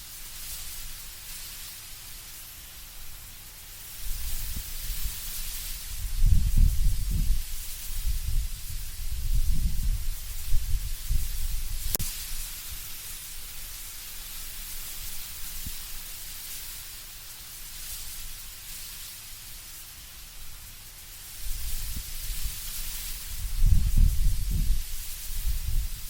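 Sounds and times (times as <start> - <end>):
leaves rustling in wind: 0.0 - 26.0
low rumbling wind gusts: 5.8 - 12.0, 23.3 - 26.0.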